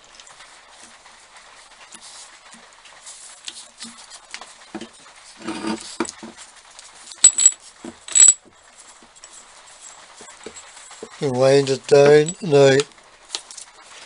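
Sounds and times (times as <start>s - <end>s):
bench drill parts rattling: 7.2s - 8.5s
metal-on-metal clinks: 7.2s - 8.5s, 12.1s - 12.6s.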